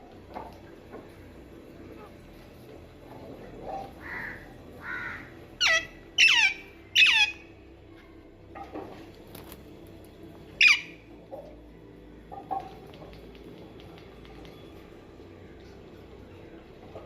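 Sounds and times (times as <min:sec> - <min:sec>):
parakeet squawking: 0:04.0 - 0:07.4, 0:10.6 - 0:11.0.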